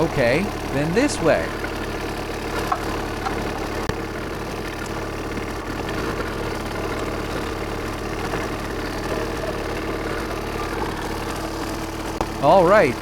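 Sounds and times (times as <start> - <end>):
excavator diesel engine idling: 0.0 - 13.0.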